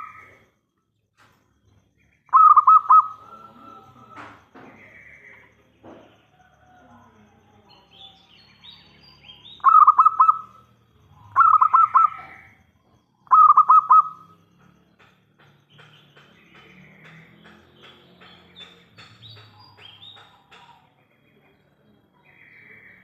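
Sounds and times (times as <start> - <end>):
dove cooing: 2.3 - 6.0, 9.6 - 10.6, 11.2 - 12.5, 13.2 - 14.4.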